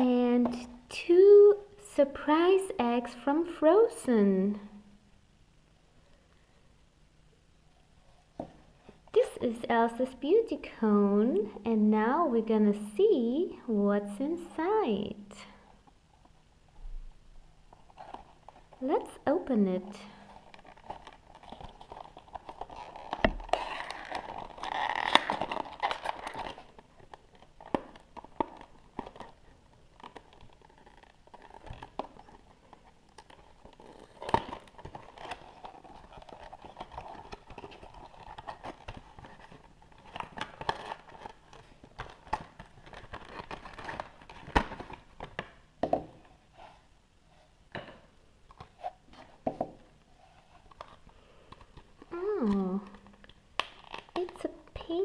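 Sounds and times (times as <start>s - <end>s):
wrapping crinkling and tearing: 20.1s - 45.4s, 50.3s - 55.0s.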